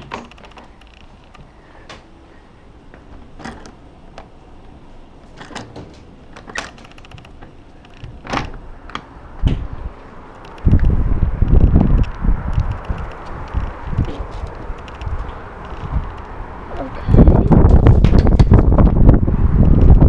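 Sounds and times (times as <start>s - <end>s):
wind on microphone: 8.0s - 20.0s.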